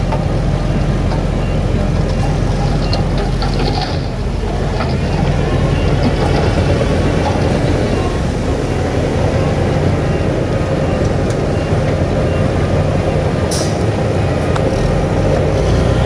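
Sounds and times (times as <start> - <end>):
diesel machinery engine drone: 0.0 - 16.0
dense mechanical clatter: 1.4 - 7.8.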